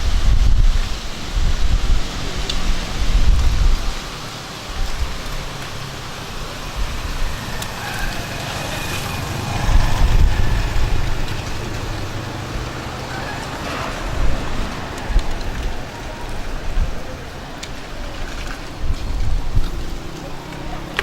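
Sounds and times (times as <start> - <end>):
rain hissing: 0.0 - 21.0
low rumble: 4.7 - 20.4.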